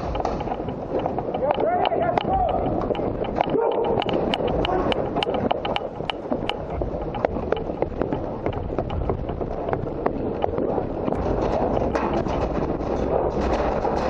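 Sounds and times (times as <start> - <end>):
low rumble: 0.0 - 14.0
sharp clicks and pops: 0.0 - 14.0.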